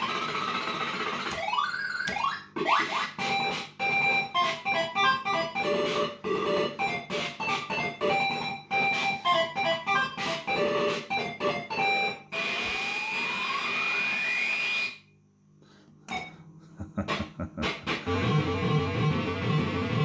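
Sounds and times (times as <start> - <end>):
repeating electronic tune: 0.0 - 14.0
pinball machine electronic effects: 0.0 - 15.0, 17.0 - 20.0.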